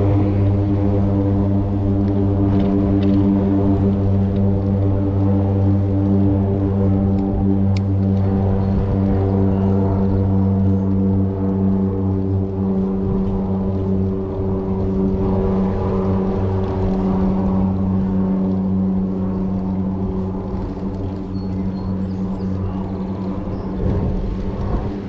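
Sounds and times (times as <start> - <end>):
engine drone: 0.0 - 25.0.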